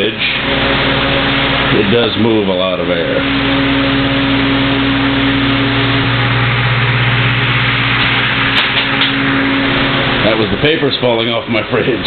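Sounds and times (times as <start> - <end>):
electric fan running: 0.0 - 12.0.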